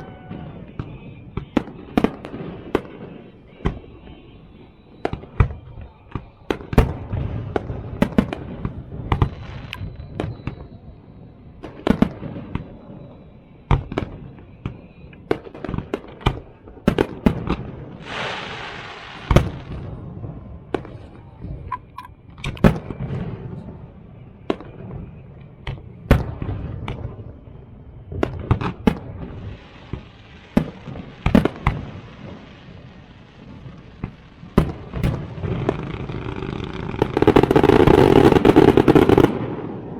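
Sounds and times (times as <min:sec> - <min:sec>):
fireworks bangs and booms: 0:00.0 - 0:39.9
hissing crackle: 0:18.0 - 0:21.6, 0:28.2 - 0:39.9.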